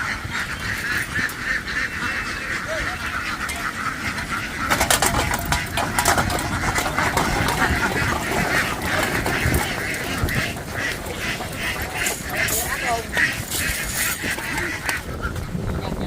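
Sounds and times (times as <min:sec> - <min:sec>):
flock of ducks quacking: 0:00.0 - 0:16.0
sharp clatters: 0:04.6 - 0:14.5.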